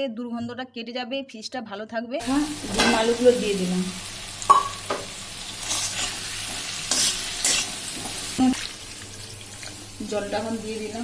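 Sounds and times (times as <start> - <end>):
food sizzling in hot oil: 2.2 - 11.0
scraping against a pan: 5.6 - 8.2.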